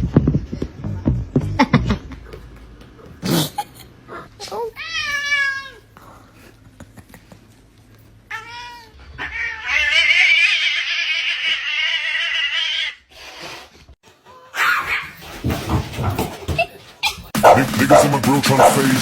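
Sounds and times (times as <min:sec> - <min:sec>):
pet animal yowling: 0:08.3 - 0:13.0, 0:14.3 - 0:15.2.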